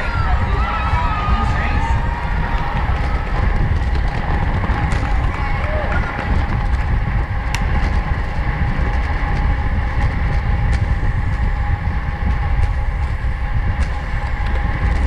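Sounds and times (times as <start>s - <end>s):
thin steady whine: 0.0s - 15.0s
wind and road rumble: 0.0s - 15.0s.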